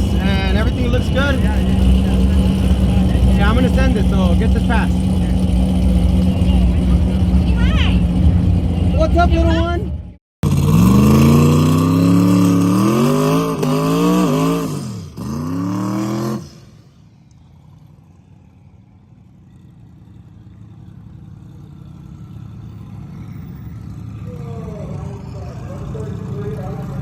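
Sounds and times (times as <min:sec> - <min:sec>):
low rumble: 0:00.0 - 0:10.2
drag car engine at full throttle: 0:00.0 - 0:27.0.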